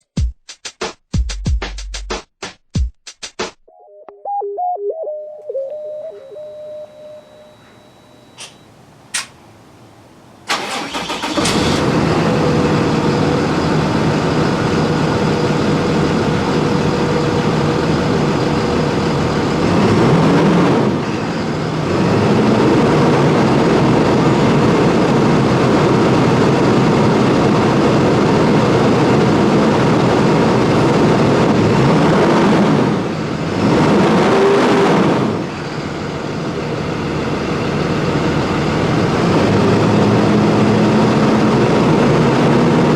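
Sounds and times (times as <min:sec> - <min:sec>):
diesel engine cranking and starting: 0:10.4 - 0:42.9
diesel engine idling: 0:10.5 - 0:20.0, 0:20.9 - 0:32.0, 0:35.2 - 0:42.9.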